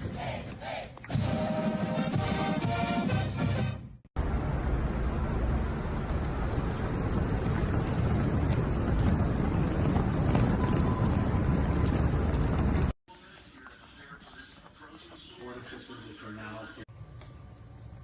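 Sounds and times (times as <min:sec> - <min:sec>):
rushing noise with low rumble: 0:04.2 - 0:12.9.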